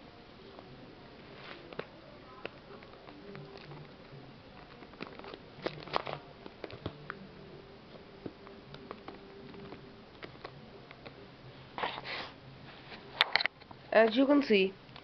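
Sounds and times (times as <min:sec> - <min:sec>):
faint steady hum: 0:00.0 - 0:15.0
plastic packet crinkling: 0:01.6 - 0:07.0.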